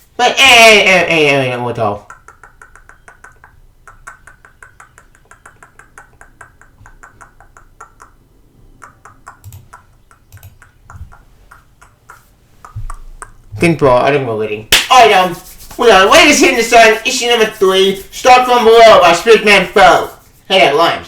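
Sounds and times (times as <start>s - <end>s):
rapid light clicking: 8.8s - 13.4s.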